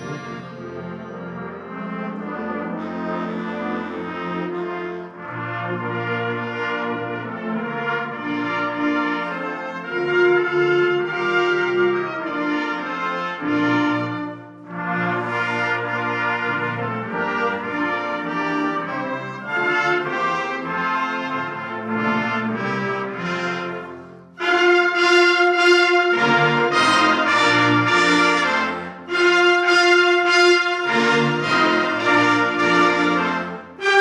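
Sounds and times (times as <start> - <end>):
concert band with brass: 0.0 - 34.0.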